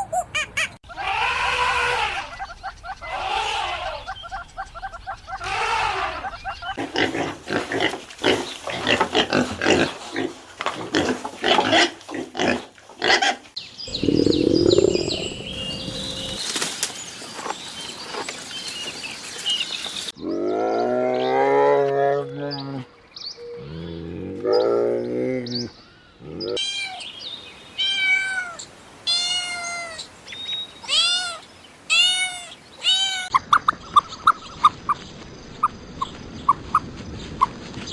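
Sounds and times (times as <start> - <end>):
pitched animal calls: 0.0 - 6.8, 13.9 - 16.4
high animal chirps: 13.9 - 16.4
low animal rumble: 13.9 - 16.4
rapid animal grunts: 13.9 - 16.4.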